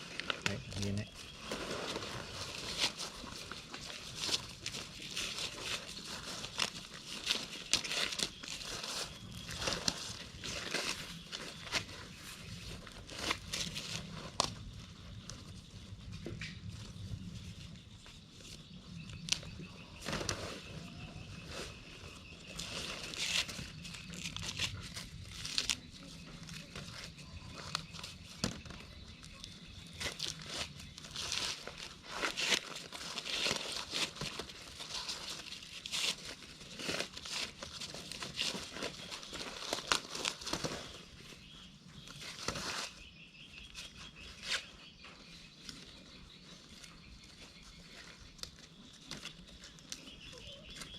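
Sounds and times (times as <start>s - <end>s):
dry corn leaves rustling: 0.0s - 50.9s.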